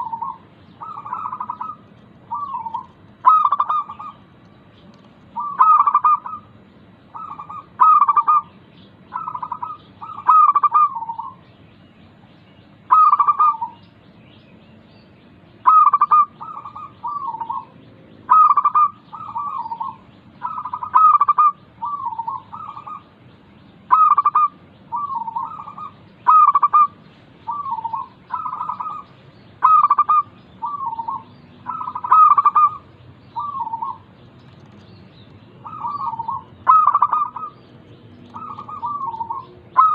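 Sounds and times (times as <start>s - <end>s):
doves cooing: 0.0s - 4.3s, 5.2s - 11.4s, 12.9s - 13.8s, 15.6s - 23.2s, 23.9s - 39.9s.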